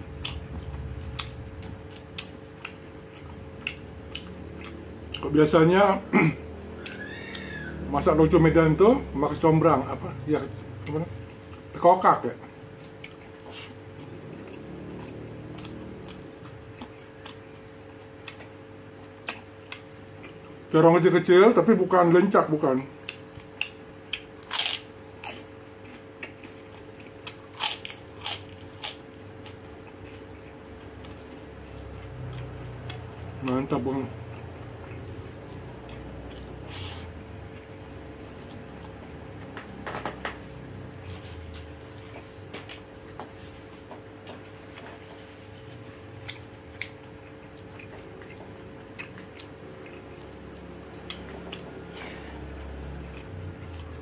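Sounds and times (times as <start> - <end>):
faint steady hum: 0.0 - 54.0
man chewing with wet mouth smacks: 0.1 - 5.3, 12.4 - 20.7, 23.0 - 33.6, 41.5 - 54.0.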